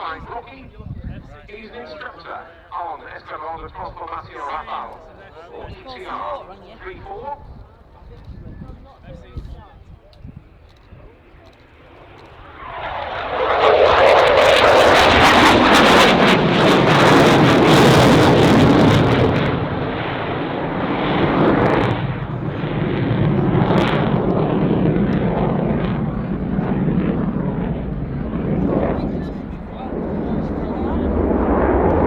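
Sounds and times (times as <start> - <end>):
fighter jet passing: 11.0 - 32.0.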